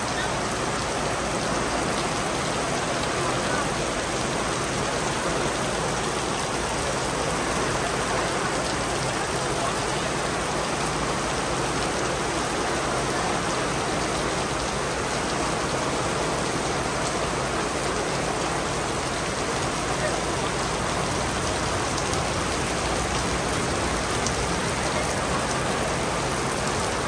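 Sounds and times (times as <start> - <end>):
steady rain hiss: 0.0 - 27.0.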